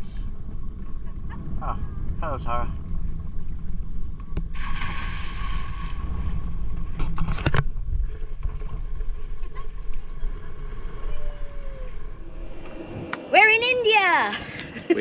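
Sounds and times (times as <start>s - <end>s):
wind and water rumble: 0.0s - 15.0s
rush of hiss: 4.6s - 6.4s.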